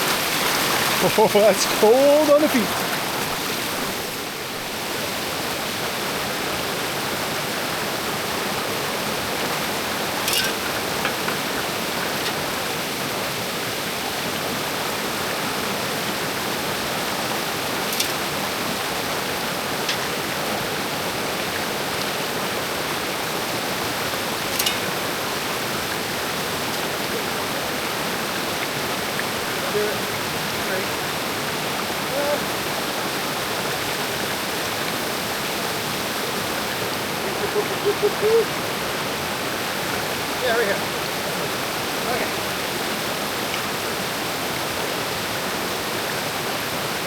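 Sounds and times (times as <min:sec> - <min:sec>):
water rushing over rocks: 0:00.0 - 0:47.0.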